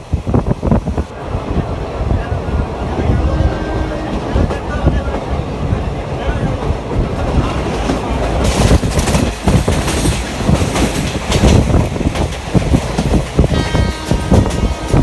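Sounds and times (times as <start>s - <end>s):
train rumble: 0.0s - 15.0s
train horn: 3.0s - 4.4s, 13.5s - 15.0s
wheels clacking over rail joints: 3.8s - 15.0s.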